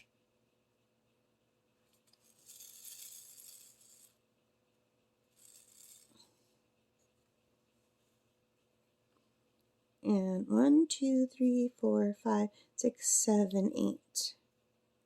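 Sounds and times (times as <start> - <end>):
small beads rattling in plastic tray: 2.1 - 4.2, 5.4 - 6.2.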